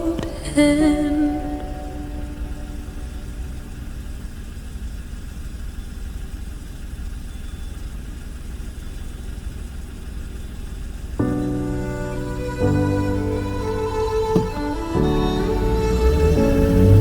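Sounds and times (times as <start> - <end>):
steady low rumble: 0.0 - 16.6.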